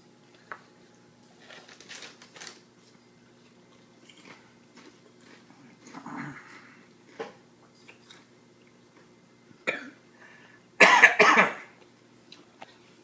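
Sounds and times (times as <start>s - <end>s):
person crunching a chip: 1.4s - 2.6s.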